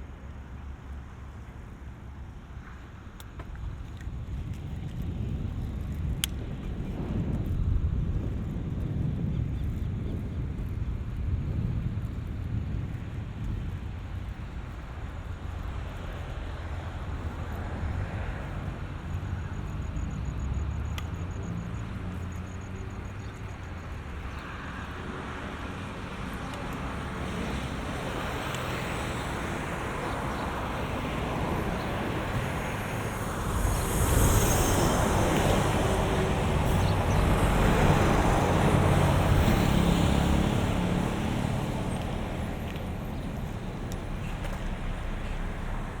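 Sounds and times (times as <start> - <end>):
traffic rushing on bridge: 10.0 - 46.0
vehicle passing close: 16.9 - 46.0.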